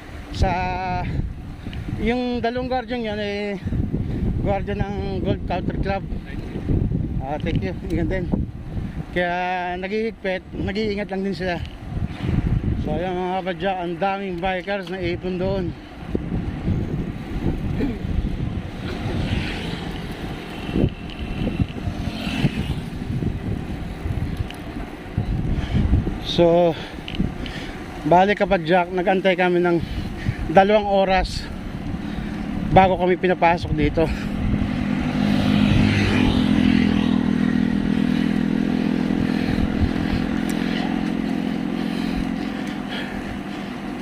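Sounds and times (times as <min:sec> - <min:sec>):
wind buffeting microphone: 0:00.0 - 0:44.0
vehicle engine running: 0:12.8 - 0:44.0.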